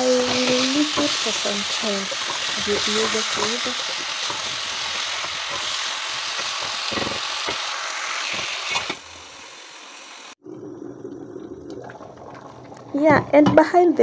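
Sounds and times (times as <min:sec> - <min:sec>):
vegetables sizzling in oil: 0:00.0 - 0:10.4.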